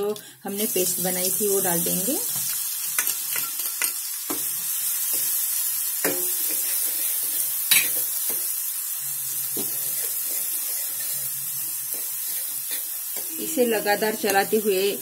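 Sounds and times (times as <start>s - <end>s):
paste sizzling in hot oil: 0.5s - 15.0s
metal spoon scraping pan: 9.6s - 14.3s.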